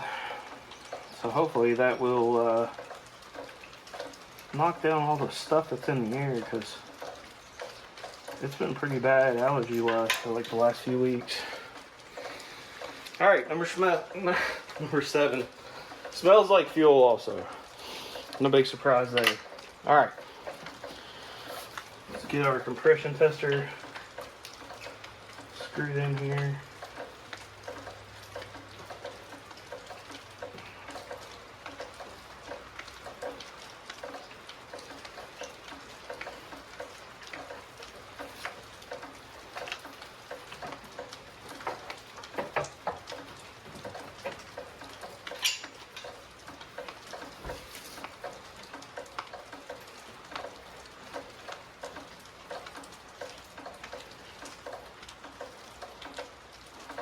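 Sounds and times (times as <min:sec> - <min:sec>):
rain pattering: 0:00.0 - 0:57.0
metal clicks and taps: 0:38.4 - 0:47.4.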